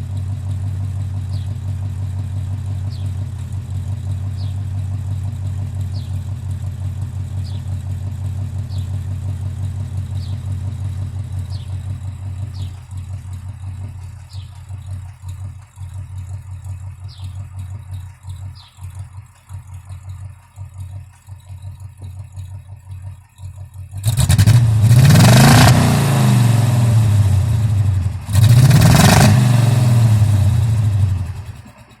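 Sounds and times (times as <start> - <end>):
car engine idling roughly: 0.0 - 32.0
faint chirp: 2.8 - 3.2, 5.9 - 6.2, 7.4 - 7.8, 8.6 - 9.0, 10.1 - 10.5, 11.4 - 12.9, 14.2 - 15.3, 16.7 - 23.5
engine revving: 23.2 - 32.0.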